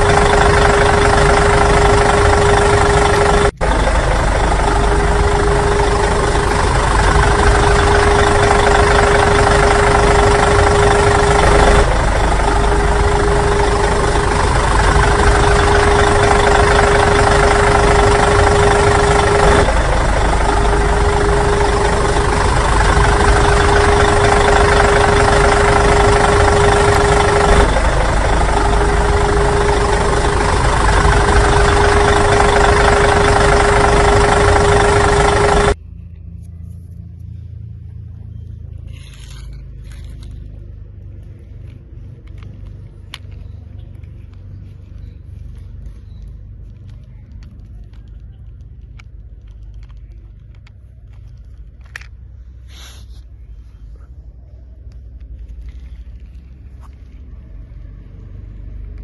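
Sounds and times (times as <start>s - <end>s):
engine-like humming: 0.0s - 59.0s.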